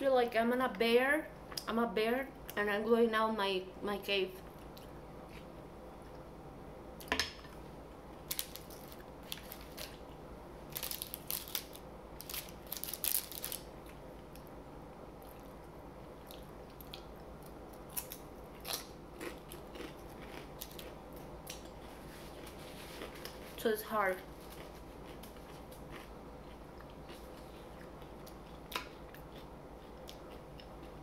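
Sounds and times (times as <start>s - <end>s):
crisp food crunching: 8.2s - 10.0s, 10.7s - 14.0s, 16.2s - 21.7s, 24.3s - 31.0s.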